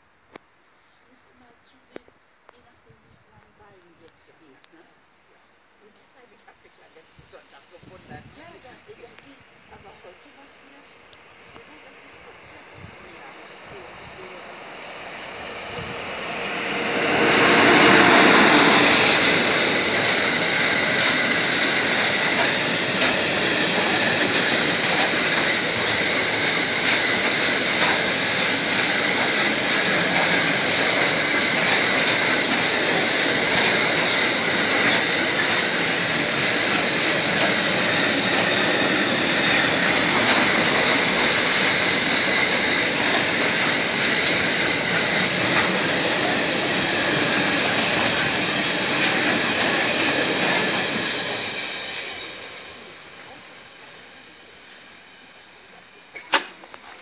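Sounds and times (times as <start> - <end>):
freight train passing: 6.4 - 57.0.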